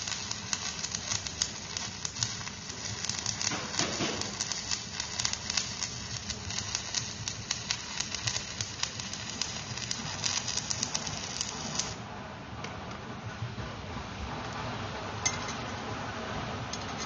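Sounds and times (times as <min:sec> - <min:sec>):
electric arc welding crackling: 0:00.0 - 0:12.0.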